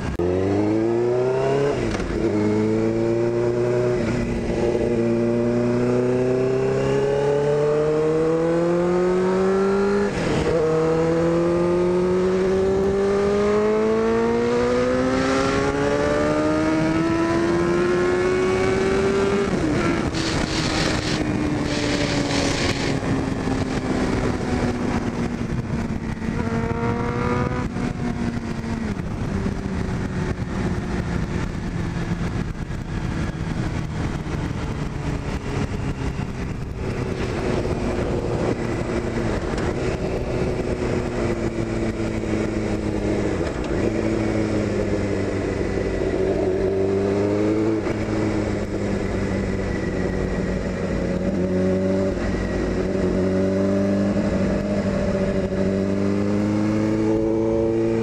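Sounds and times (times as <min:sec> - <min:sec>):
motorcycle engine accelerating: 0:00.0 - 0:58.0
rush of noise: 0:15.0 - 0:27.7.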